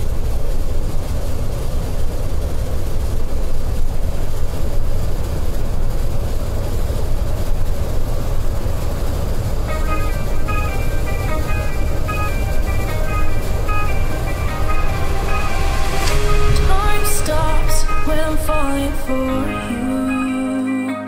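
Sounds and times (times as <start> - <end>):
coach engine and road noise: 0.0 - 20.9
background music: 9.7 - 21.0.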